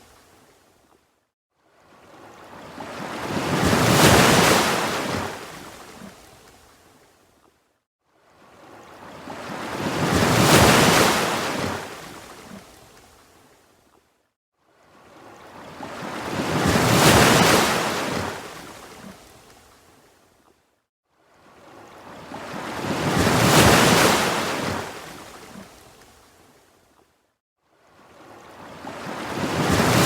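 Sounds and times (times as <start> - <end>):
ocean waves breaking: 1.9 - 6.3, 8.5 - 12.7, 15.0 - 19.4, 21.5 - 26.0, 28.0 - 30.0.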